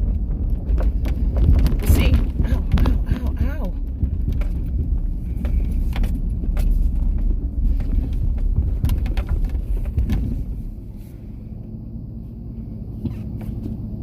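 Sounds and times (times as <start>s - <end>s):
clicks and rattles: 0.0s - 10.8s
truck engine and road rumble: 0.0s - 14.0s.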